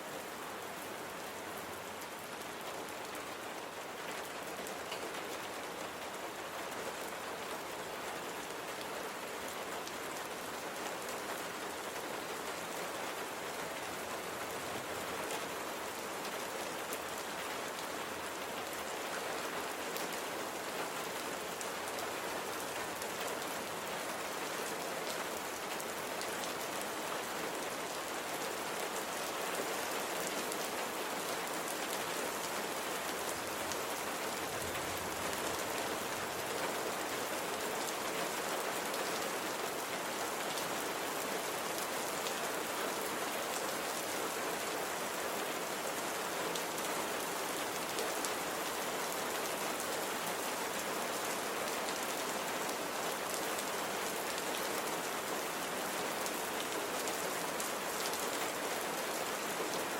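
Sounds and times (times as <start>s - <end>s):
rain pattering on surface: 0.0s - 59.9s.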